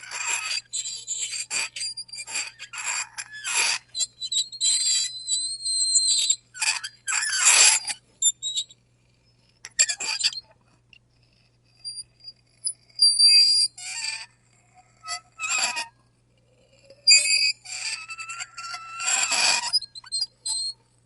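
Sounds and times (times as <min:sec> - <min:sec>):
faint ticks: 0:10.6 - 0:12.8
fork scraping across a plate: 0:15.1 - 0:15.9, 0:16.7 - 0:20.7.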